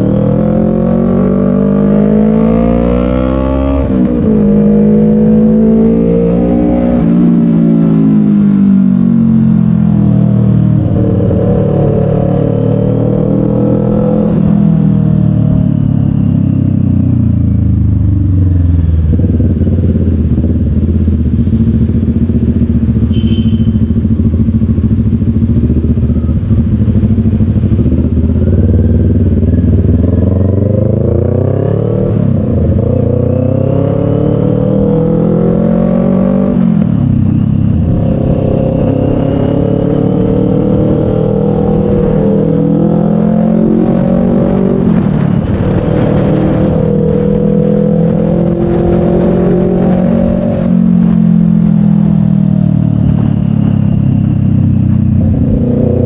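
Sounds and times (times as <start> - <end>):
motorcycle engine revving: 0.0 - 56.0
high beep: 23.1 - 24.0.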